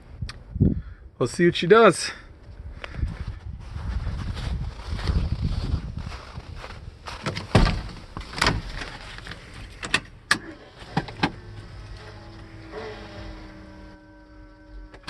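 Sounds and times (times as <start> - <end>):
truck door clicks and knocks: 7.2 - 8.8
steady electrical hum: 7.6 - 15.0.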